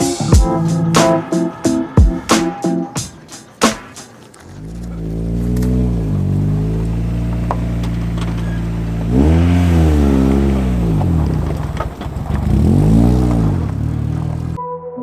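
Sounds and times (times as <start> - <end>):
car engine idling and revving: 0.4 - 14.6.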